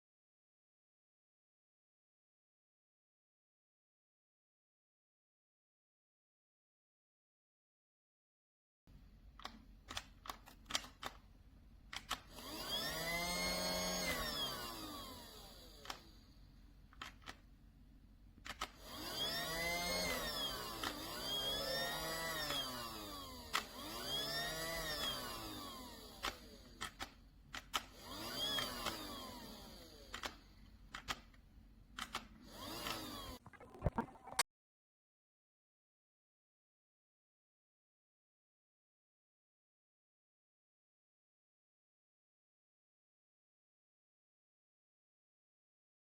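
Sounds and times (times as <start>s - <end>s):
toy vacuum motor whine: 12.1s - 16.3s, 18.5s - 30.6s, 32.4s - 33.4s.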